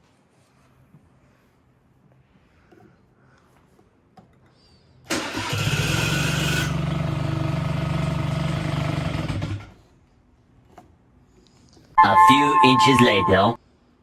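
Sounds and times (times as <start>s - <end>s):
scooter engine starting: 5.1s - 9.8s.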